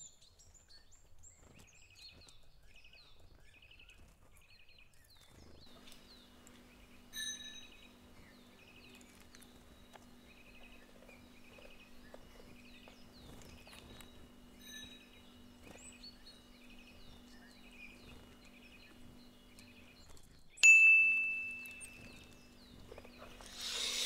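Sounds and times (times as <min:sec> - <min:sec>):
small birds chirping: 0:00.0 - 0:24.0
low steady hum: 0:05.5 - 0:24.0
loud bell-like ding: 0:20.6 - 0:21.8.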